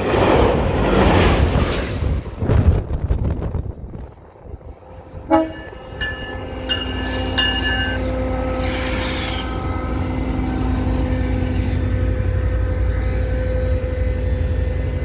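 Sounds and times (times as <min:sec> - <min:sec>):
train rumbling past: 0:00.0 - 0:15.0
train horn blasts: 0:05.2 - 0:11.7
brief hiss: 0:08.6 - 0:09.6.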